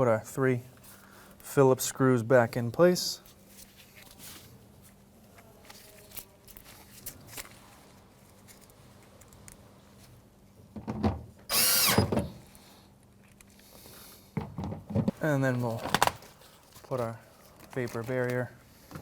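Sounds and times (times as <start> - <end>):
cordless drill motor whining: 11.5 - 12.4.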